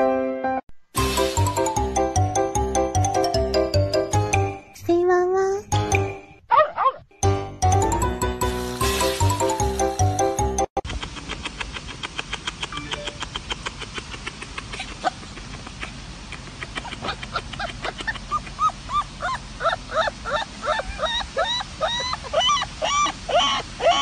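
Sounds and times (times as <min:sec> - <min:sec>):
music: 0:00.0 - 0:04.8, 0:05.5 - 0:06.4, 0:07.2 - 0:10.8
puppy whimpering: 0:16.8 - 0:24.0.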